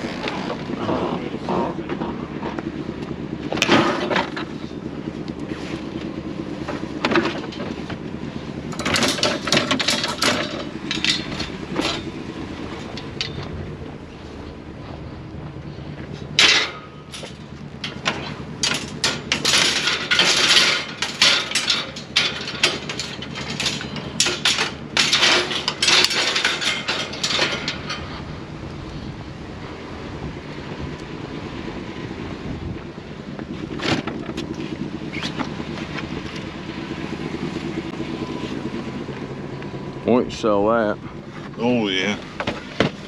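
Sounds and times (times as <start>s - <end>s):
low vehicle hum: 0.0s - 43.0s
knocks and rattles: 3.4s - 4.8s, 6.1s - 13.8s, 16.0s - 28.3s, 42.1s - 43.0s.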